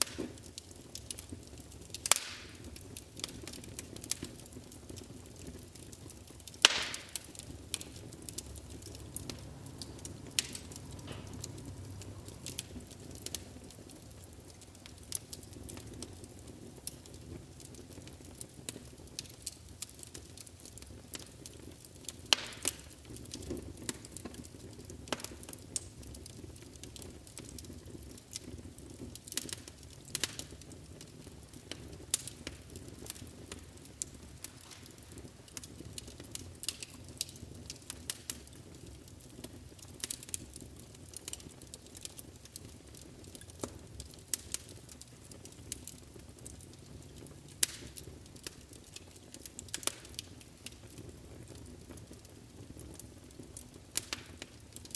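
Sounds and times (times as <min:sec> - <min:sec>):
fire crackling: 0:00.0 - 0:54.9
fire flames rumbling: 0:00.0 - 0:54.9
wood snapping pops: 0:02.1 - 0:02.5, 0:06.6 - 0:07.9.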